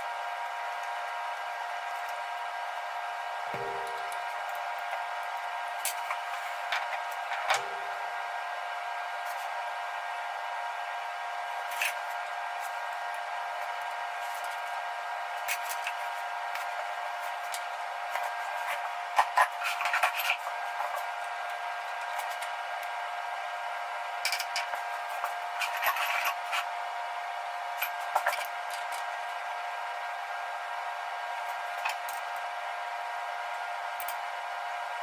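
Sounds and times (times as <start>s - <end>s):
steady machine hum: 0.0s - 35.0s.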